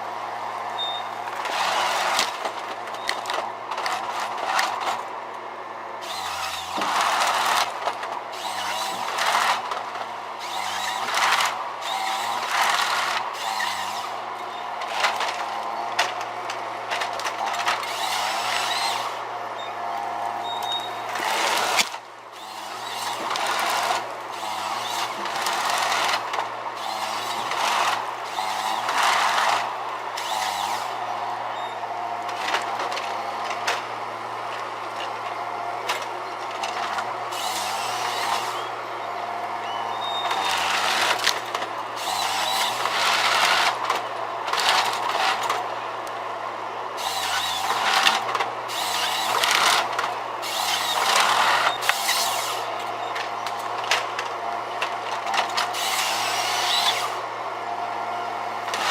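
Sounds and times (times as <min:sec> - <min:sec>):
machine engine hum: 0:00.0 - 0:58.9
harsh sawing bursts: 0:01.4 - 0:02.5, 0:06.0 - 0:15.6, 0:17.4 - 0:19.3, 0:20.9 - 0:31.5, 0:36.6 - 0:38.8, 0:40.2 - 0:45.7, 0:46.9 - 0:52.8, 0:55.0 - 0:57.3, 0:58.6 - 0:58.9.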